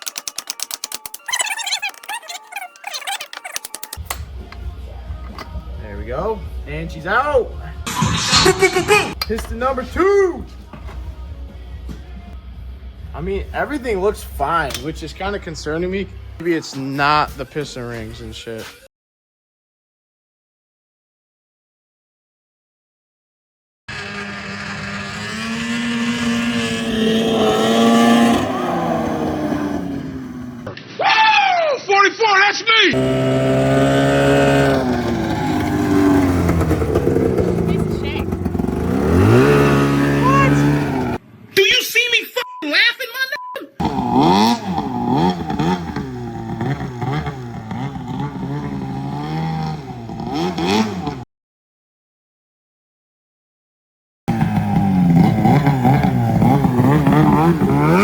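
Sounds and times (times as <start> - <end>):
vehicle engine revving high: 23.9 - 30.7, 33.0 - 41.2, 43.8 - 51.2, 54.3 - 58.0.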